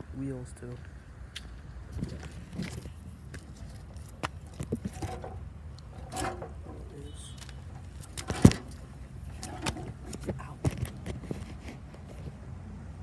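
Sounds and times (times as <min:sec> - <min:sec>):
lawnmower parts clicking and knocking: 0:02.5 - 0:12.3.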